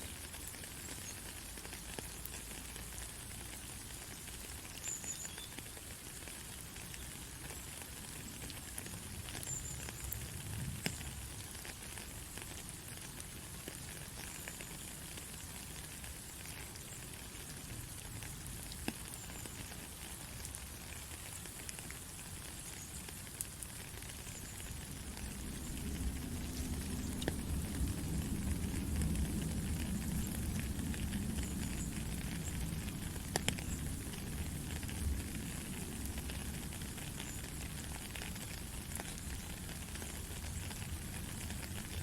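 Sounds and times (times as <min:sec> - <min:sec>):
rain pattering: 0:00.0 - 0:42.0
single raindrop ticks: 0:24.6 - 0:35.2.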